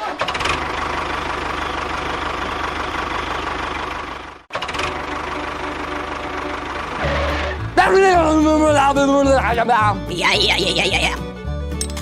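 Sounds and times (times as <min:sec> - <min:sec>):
engine chugging: 0:00.0 - 0:09.5.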